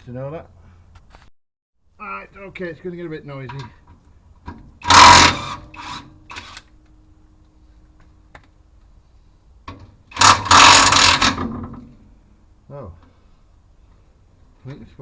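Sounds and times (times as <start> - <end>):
impact wrench bursts: 4.8 - 6.7, 10.1 - 11.6.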